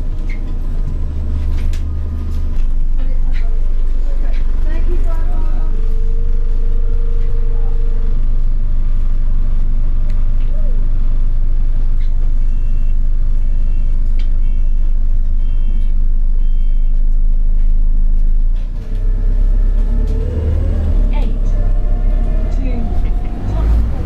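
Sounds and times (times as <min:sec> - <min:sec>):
bus engine drone on board: 0:00.0 - 0:24.0
short electronic beeps: 0:11.8 - 0:17.2.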